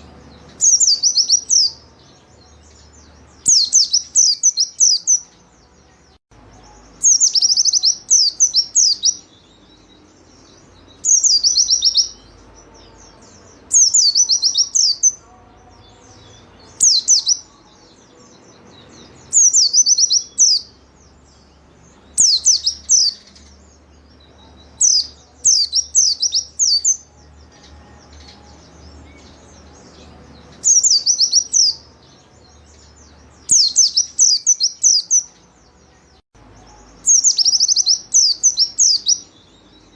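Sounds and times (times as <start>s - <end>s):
bird twittering: 6.6s - 9.3s, 22.0s - 23.6s, 33.4s - 35.4s, 36.7s - 39.3s.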